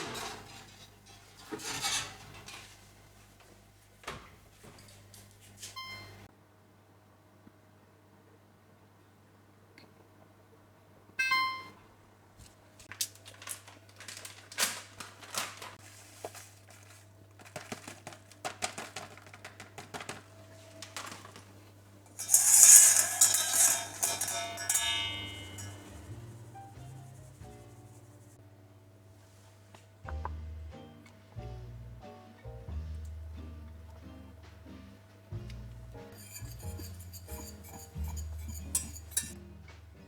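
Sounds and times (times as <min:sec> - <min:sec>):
dishes clinking: 0:22.1 - 0:27.5, 0:36.2 - 0:39.4
noisy scraping: 0:22.1 - 0:28.3, 0:36.1 - 0:39.4.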